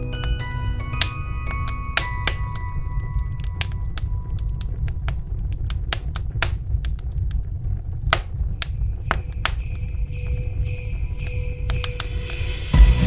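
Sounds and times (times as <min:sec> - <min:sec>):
jingling sleigh bells music: 0:00.0 - 0:04.0, 0:08.8 - 0:13.0
wood fire crackling and popping: 0:00.0 - 0:12.5.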